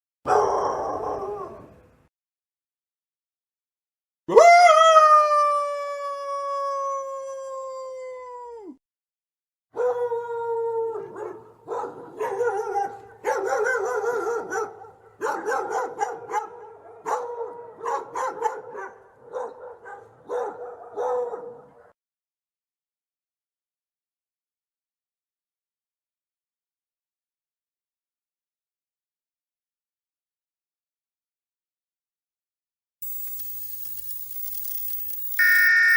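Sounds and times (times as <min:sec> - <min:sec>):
dog howling: 0:09.8 - 0:11.2.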